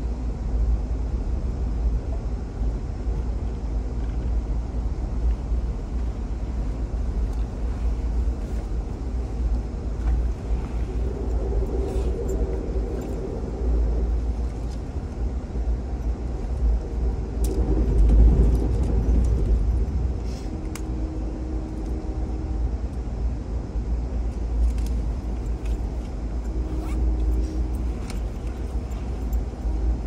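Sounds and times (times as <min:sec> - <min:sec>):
train car rumbling on rails: 0:00.0 - 0:30.0
faint steady tones: 0:05.0 - 0:30.0.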